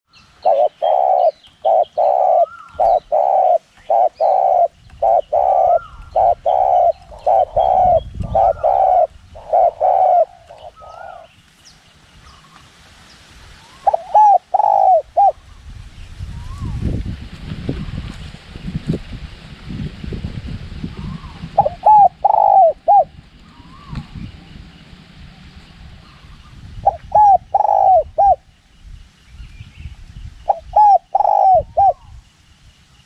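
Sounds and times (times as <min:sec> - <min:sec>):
small birds chirping: 0:00.1 - 0:16.9, 0:20.9 - 0:33.0
low wind rumble: 0:00.1 - 0:33.0
dove cooing: 0:00.4 - 0:11.3, 0:13.7 - 0:15.4, 0:21.0 - 0:24.0, 0:26.8 - 0:28.5, 0:30.5 - 0:32.1.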